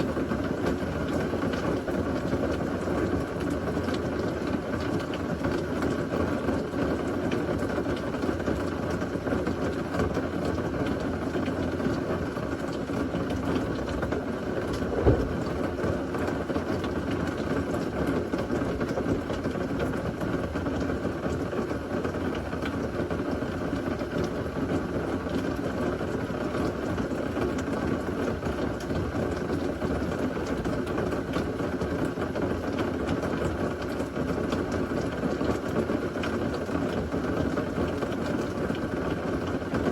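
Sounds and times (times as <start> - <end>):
heavy rain falling: 0.0 - 39.9
sharp knock: 14.8 - 15.6.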